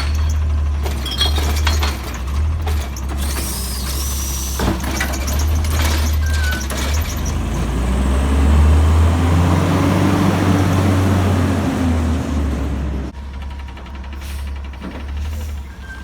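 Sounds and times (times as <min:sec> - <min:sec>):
diesel truck engine revving: 0:05.5 - 0:13.2.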